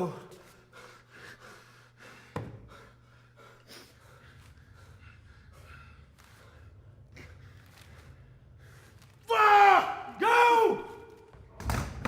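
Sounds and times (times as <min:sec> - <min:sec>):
man breathing and gasping: 0:00.2 - 0:09.2.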